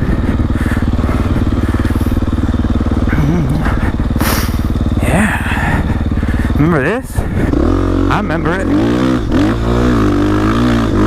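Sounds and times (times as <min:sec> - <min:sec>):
dirt bike engine idling: 0:00.0 - 0:11.0
short hiss: 0:04.2 - 0:04.7.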